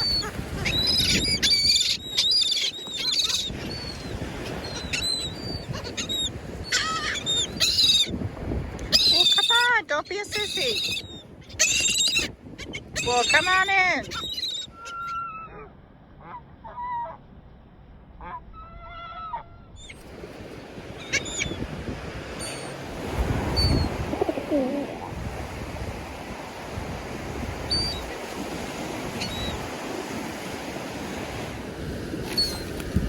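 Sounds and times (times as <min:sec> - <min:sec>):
seagulls squawking: 0:00.0 - 0:08.2, 0:08.8 - 0:17.2, 0:20.8 - 0:25.2, 0:27.6 - 0:29.9, 0:32.3 - 0:32.8
wind: 0:00.0 - 0:33.0
surf: 0:20.0 - 0:33.0.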